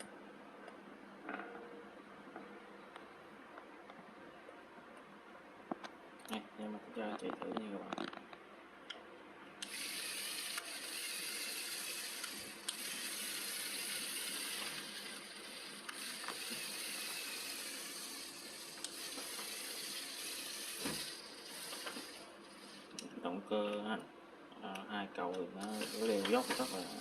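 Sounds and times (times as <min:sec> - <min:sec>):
model tractor motor whirring: 0:09.6 - 0:23.0, 0:25.6 - 0:27.0.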